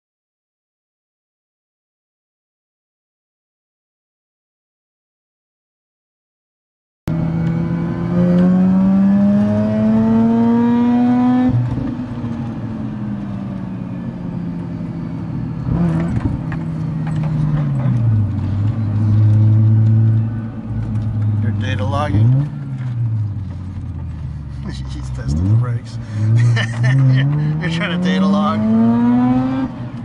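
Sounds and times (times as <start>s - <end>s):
car engine accelerating: 7.1s - 30.0s.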